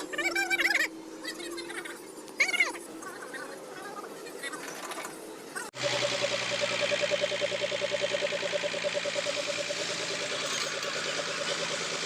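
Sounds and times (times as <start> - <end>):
truck engine idling: 5.8 - 12.0.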